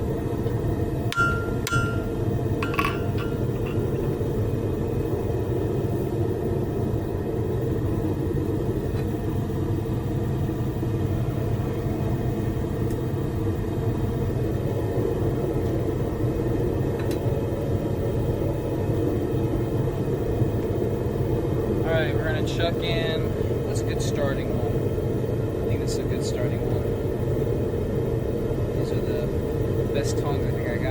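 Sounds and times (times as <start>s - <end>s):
gas burners rushing: 0.0s - 10.0s.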